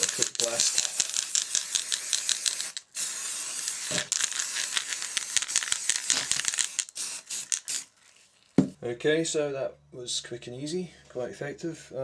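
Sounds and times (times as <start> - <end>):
spray can hissing: 0.0 - 7.9
spray paint can rattling: 0.0 - 7.9.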